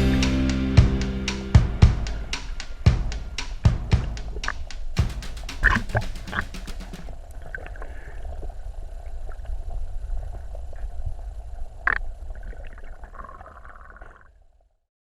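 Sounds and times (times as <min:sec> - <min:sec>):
sharp knock: 0:05.0 - 0:07.1
muffled rumble of moving water: 0:07.1 - 0:14.8.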